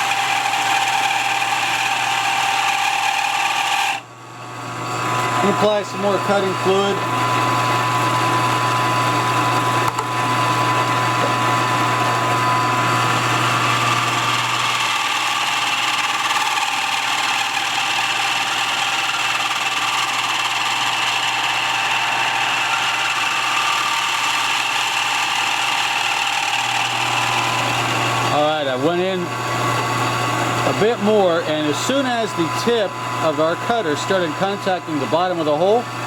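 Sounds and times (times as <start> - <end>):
milling cutter whine: 0.0 - 36.0
milling machine motor hum: 0.0 - 36.0.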